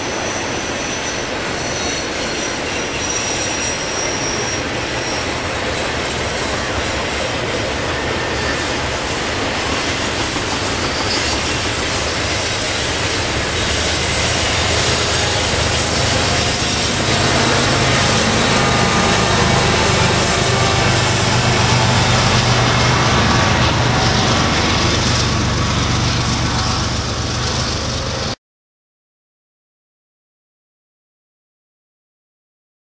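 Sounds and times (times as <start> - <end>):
train wheels on rails: 0.0 - 28.4
wheel squeal: 0.1 - 28.3
diesel engine drone: 11.6 - 28.4.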